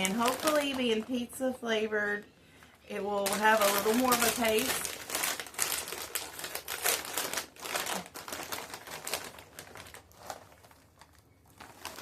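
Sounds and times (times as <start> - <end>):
snack bag crinkling: 0.0 - 1.2, 3.1 - 12.0.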